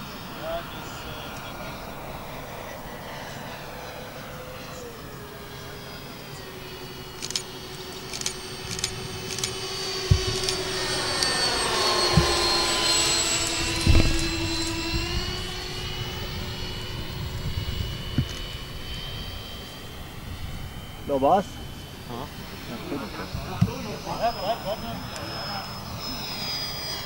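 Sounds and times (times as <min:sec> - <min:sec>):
model jet fans whining: 0:00.0 - 0:27.0
wind thumps on microphone: 0:10.0 - 0:10.5, 0:12.1 - 0:12.6, 0:13.7 - 0:15.4.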